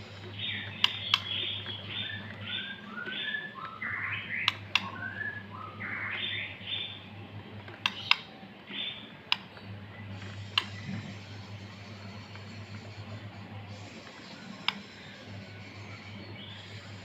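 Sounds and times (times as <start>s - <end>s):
low steady hum: 0.0s - 17.0s
sharp clicks: 0.2s - 5.1s, 7.6s - 8.3s, 9.3s - 9.7s, 10.4s - 10.9s, 14.0s - 15.2s
bird singing whistled phrases: 0.5s - 7.0s.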